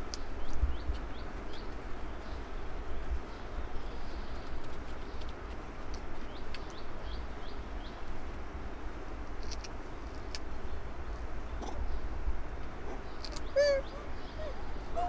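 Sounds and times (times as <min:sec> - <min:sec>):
small bird chirping: 0:12.9 - 0:15.0.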